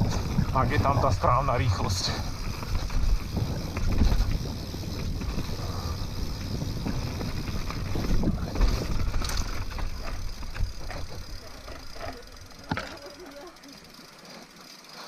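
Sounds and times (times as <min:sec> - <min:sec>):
wind on microphone: 0:00.0 - 0:11.2
bike knocking and rattling: 0:00.0 - 0:15.0
tyres rumbling on dirt trail: 0:00.0 - 0:15.0.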